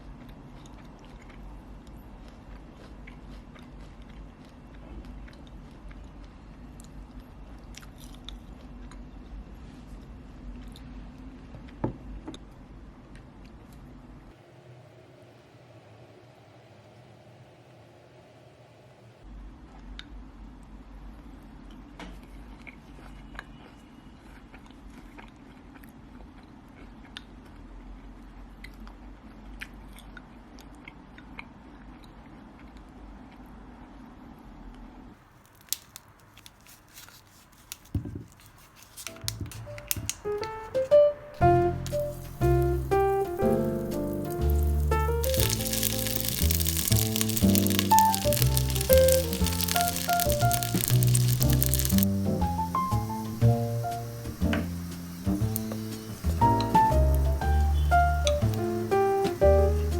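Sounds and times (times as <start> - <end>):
person chewing food: 0.0 - 9.0, 42.1 - 53.3
small clicks: 44.2 - 52.2.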